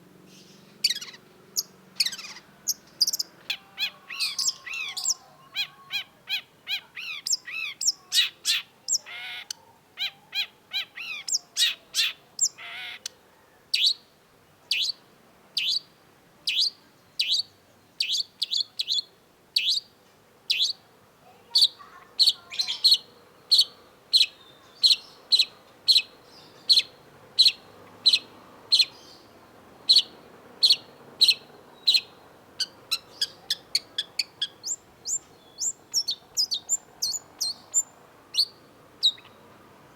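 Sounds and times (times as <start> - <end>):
shrike singing: 0.4 - 9.2, 21.5 - 39.6.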